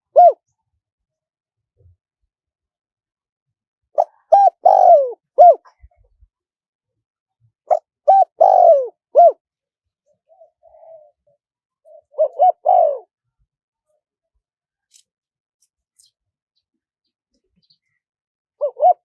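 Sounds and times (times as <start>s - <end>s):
dove cooing: 0.0s - 0.5s, 4.0s - 5.9s, 7.7s - 9.4s, 10.2s - 13.2s, 18.6s - 19.0s.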